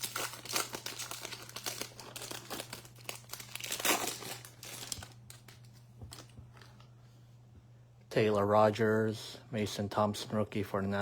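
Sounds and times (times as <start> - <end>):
plastic wrapper crinkling and tearing: 0.0 - 6.4.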